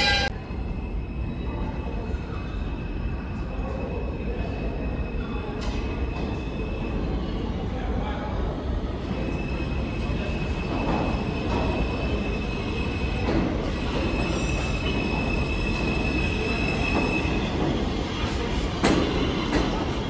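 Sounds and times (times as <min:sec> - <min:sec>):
high-pitched wheel squeal: 0:00.0 - 0:00.3, 0:11.1 - 0:19.4
subway train wheels rumbling: 0:00.0 - 0:20.0.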